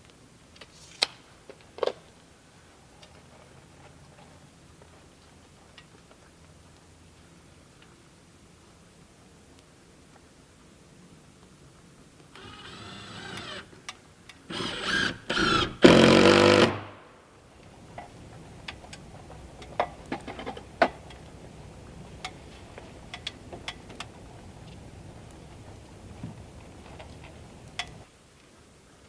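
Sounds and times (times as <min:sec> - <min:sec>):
power tool motor bursts: 0:12.4 - 0:13.8, 0:14.5 - 0:17.0.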